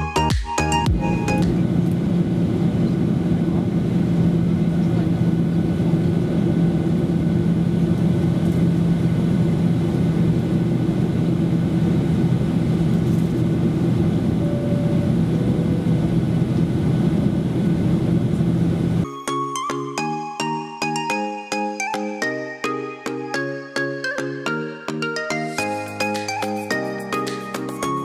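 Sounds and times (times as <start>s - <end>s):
jet engines droning in cabin: 0.6s - 19.3s.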